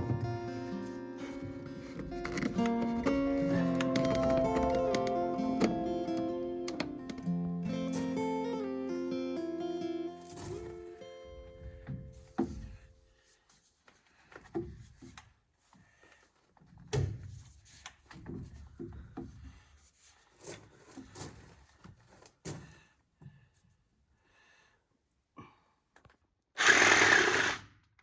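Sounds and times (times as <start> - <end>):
plumbing pipes knocking: 1.3 - 7.3.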